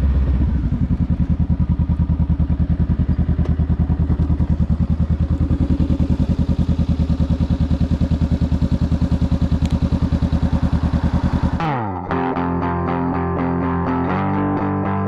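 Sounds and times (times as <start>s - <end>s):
motorcycle engine idling: 0.0s - 11.6s
distorted electric guitar music: 9.8s - 15.0s.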